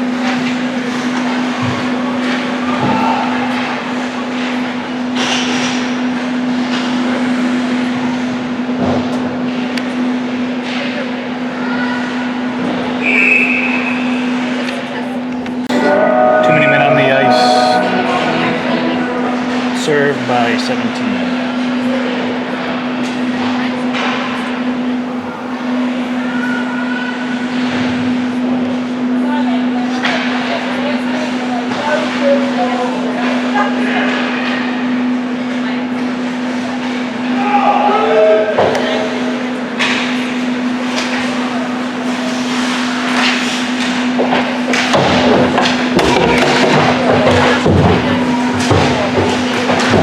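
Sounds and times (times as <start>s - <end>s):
crowd noise: 15.1s - 22.4s.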